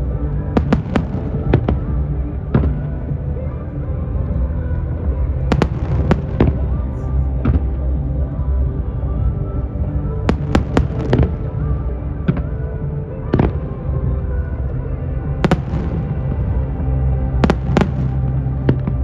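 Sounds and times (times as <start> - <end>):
music: 0.0 - 19.0
fireworks bangs: 17.4 - 19.0.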